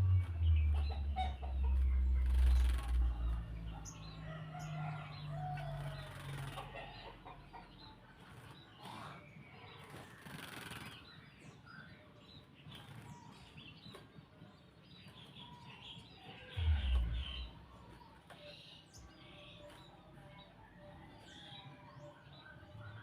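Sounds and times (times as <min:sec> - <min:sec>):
bird wings flapping: 0:09.8 - 0:11.0
low thump: 0:16.6 - 0:17.6.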